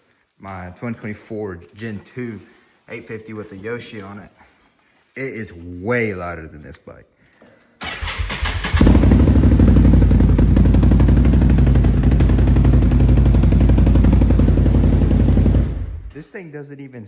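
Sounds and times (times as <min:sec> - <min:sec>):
engine clatter: 0:07.8 - 0:16.1
atv engine running loud: 0:08.7 - 0:16.1.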